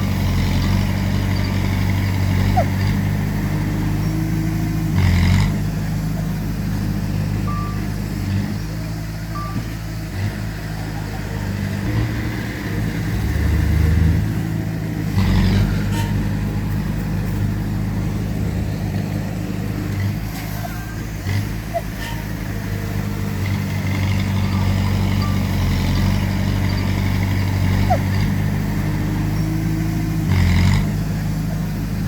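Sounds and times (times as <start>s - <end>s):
diesel machinery rumbling: 0.0s - 32.0s
short high beeps: 7.5s - 7.9s, 9.3s - 9.7s.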